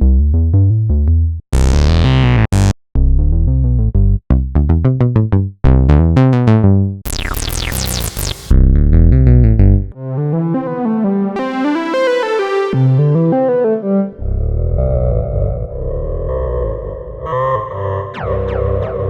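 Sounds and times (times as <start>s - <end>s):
synthesizer playing: 7.1s - 8.6s, 10.0s - 14.2s.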